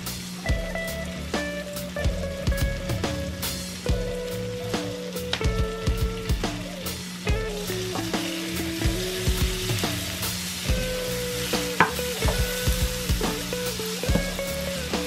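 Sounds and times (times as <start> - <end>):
shrimp sizzling in butter: 0.0 - 15.0
spatula knocking on pan: 11.7 - 14.6.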